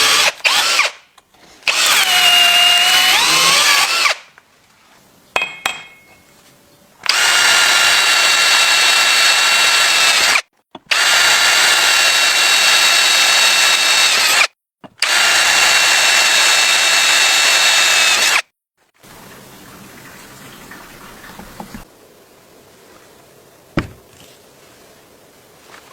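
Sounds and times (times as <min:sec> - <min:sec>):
electric drill motor whining: 0:00.0 - 0:01.0, 0:01.7 - 0:04.2, 0:07.0 - 0:18.4.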